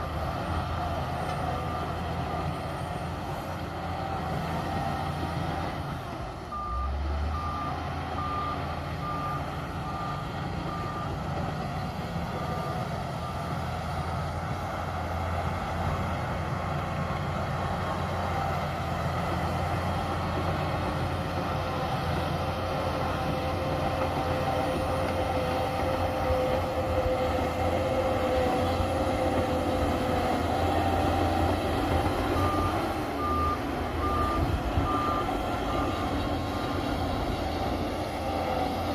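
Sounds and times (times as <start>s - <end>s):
bulldozer diesel engine running: 0.0s - 38.9s
reversing alarm beeping: 6.5s - 11.2s, 30.6s - 37.4s.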